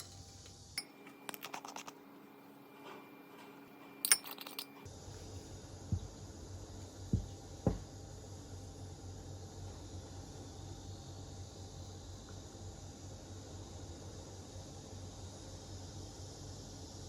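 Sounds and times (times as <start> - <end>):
light clinks and taps: 4.0 - 4.9
crickets and katydids chirping: 4.8 - 17.0
soft low thumps: 5.9 - 6.3, 7.0 - 8.0.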